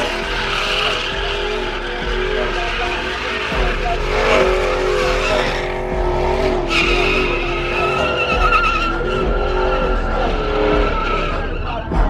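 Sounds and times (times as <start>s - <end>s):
tires squealing: 0.0s - 12.0s
truck engine at high revs: 0.0s - 12.0s.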